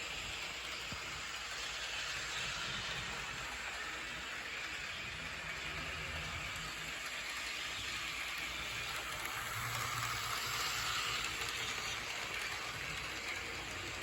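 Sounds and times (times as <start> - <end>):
model train wheels rolling on rails: 0.0 - 14.0.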